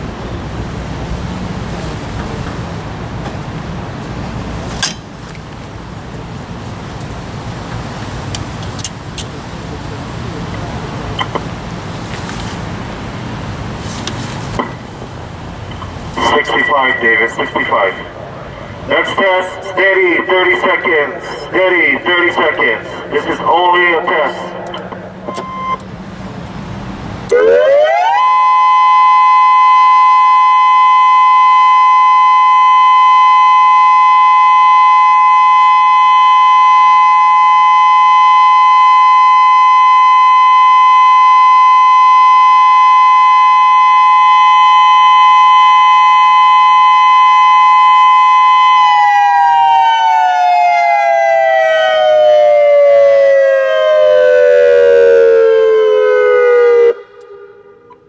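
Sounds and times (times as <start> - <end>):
loud electronic warning siren: 9.6 - 11.8, 14.5 - 58.0.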